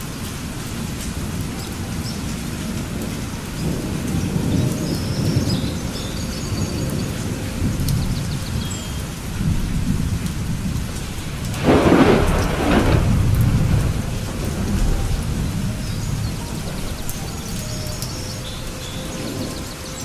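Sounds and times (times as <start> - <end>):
steady rain: 0.0 - 20.0
thunder rumbling: 0.0 - 20.0
sharp thunderclap: 9.3 - 18.3.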